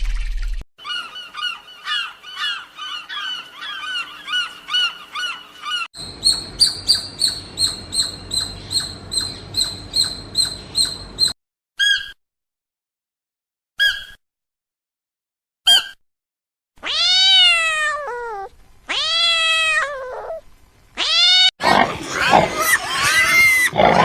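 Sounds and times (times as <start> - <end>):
high-pitched bird calls: 0.8 - 12.2, 13.8 - 14.2, 15.7 - 16.0.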